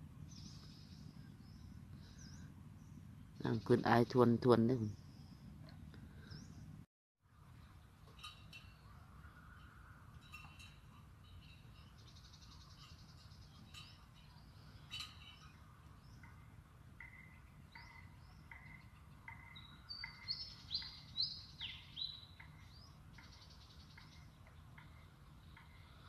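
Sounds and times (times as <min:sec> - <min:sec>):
small birds chirping: 0:11.3 - 0:26.0.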